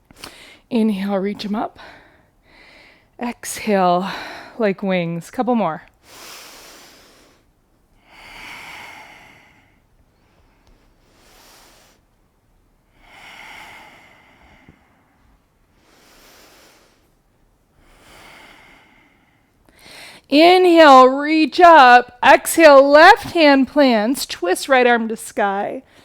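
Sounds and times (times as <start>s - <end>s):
slow deep breathing: 1.8s - 3.2s, 6.0s - 12.2s, 12.8s - 20.3s.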